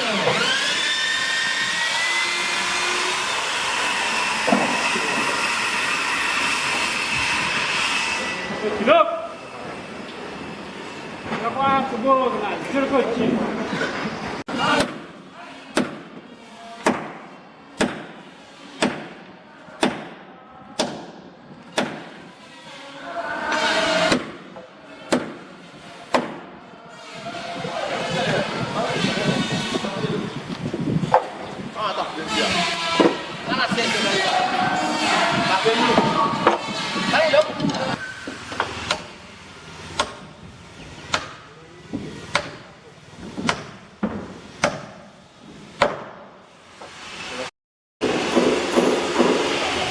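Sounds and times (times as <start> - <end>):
hammer striking wood: 4.4 - 5.4, 14.7 - 15.1, 15.7 - 16.2, 16.8 - 18.2, 18.8 - 20.2, 20.8 - 22.2, 24.1 - 25.5, 26.1 - 26.5, 31.0 - 31.4, 32.6 - 33.3, 35.0 - 37.8, 38.5 - 39.1, 39.9 - 40.3, 41.1 - 45.1, 45.8 - 46.3, 48.0 - 49.6.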